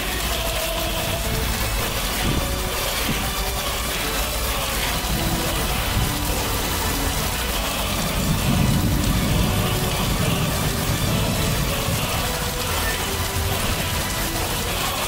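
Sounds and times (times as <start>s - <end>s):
heavy rain falling: 0.0s - 15.0s
low thunder rumble: 4.9s - 13.0s.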